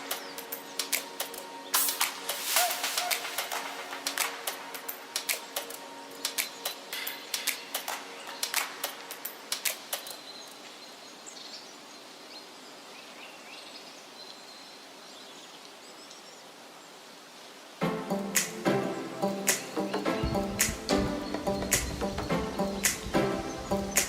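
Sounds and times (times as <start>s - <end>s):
outdoor background hiss: 0.0s - 24.0s
faint birdsong chirps: 9.3s - 17.8s, 19.2s - 24.0s.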